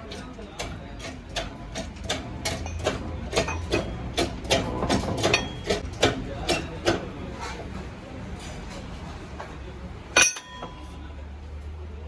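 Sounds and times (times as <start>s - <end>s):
sharp metal taps: 10.2s - 11.0s.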